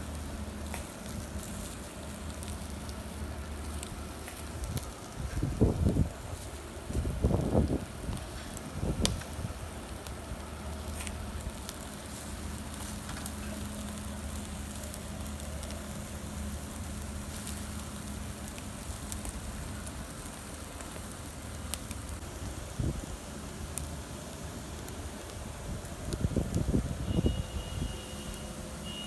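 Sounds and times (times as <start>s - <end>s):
meat sizzling: 0.0s - 27.1s
fire crackling and popping: 0.0s - 29.0s.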